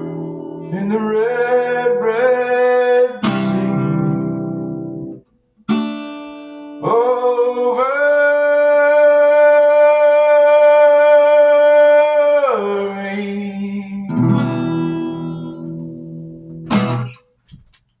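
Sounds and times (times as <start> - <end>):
person singing: 0.0 - 4.5, 6.8 - 15.6
acoustic guitar strum: 0.0 - 17.4.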